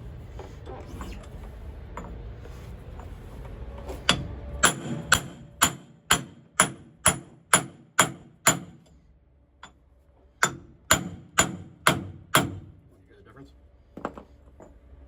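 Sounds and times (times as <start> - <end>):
hammer striking metal: 4.1 - 8.9, 10.4 - 12.8.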